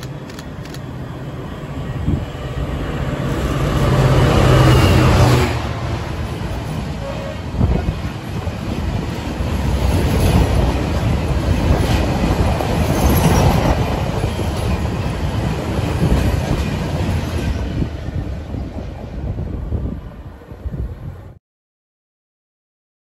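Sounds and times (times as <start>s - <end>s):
freight train rumbling past: 0.0s - 21.4s.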